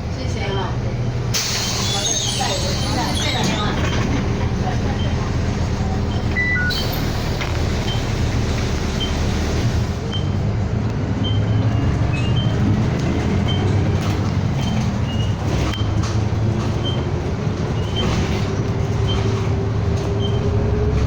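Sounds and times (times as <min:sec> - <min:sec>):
bus engine and road rumble: 0:00.0 - 0:21.0
short high beeps: 0:06.3 - 0:07.0.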